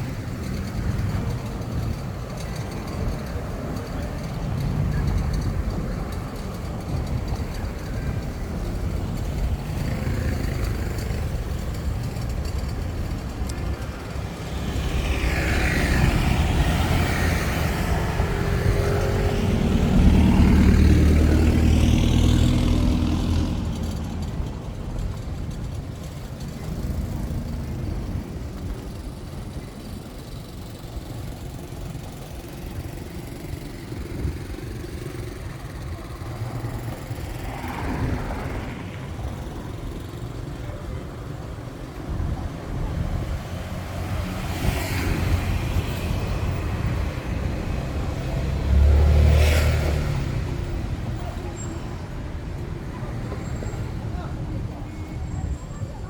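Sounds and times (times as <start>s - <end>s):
steady traffic noise: 0.0s - 56.0s
vehicle passing by: 14.2s - 24.5s, 33.6s - 40.8s, 42.4s - 54.4s.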